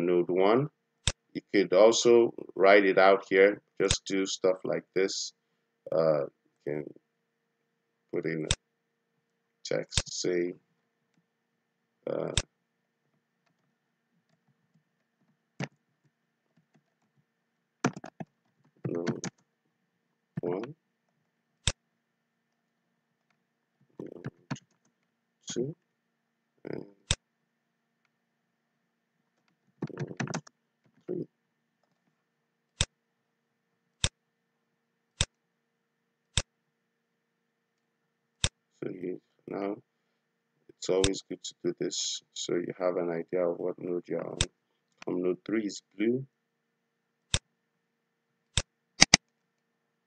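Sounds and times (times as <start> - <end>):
keyboard and mouse clicks: 15.6 - 15.8, 17.8 - 19.4, 29.4 - 31.1, 48.5 - 49.3
computer mouse clicks: 48.5 - 49.3.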